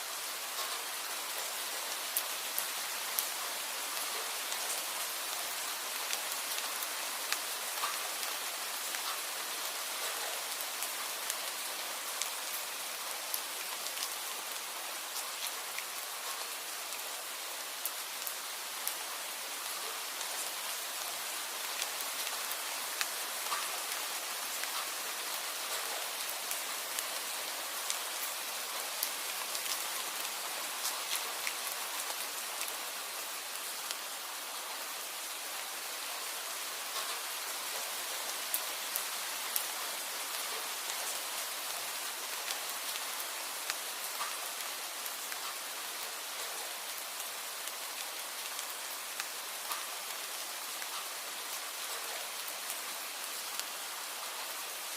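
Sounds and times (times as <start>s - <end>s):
steady rain hiss: 0.0s - 54.9s
sharp raindrop ticks: 6.1s - 8.3s, 36.9s - 37.8s, 42.4s - 44.7s, 45.3s - 46.5s, 48.5s - 51.2s.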